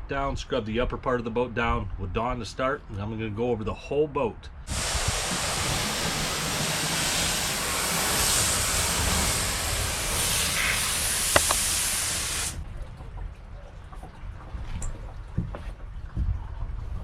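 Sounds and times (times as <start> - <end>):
water spraying from hose nozzle: 4.7 - 12.6
nozzle click: 10.1 - 12.6.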